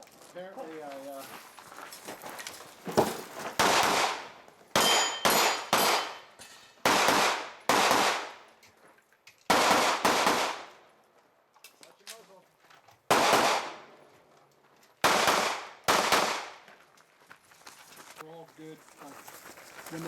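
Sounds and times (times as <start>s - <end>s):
gunshots: 3.6s - 8.4s, 9.5s - 10.8s, 13.1s - 13.9s, 15.0s - 16.6s
steel targets clanging: 4.8s - 6.8s.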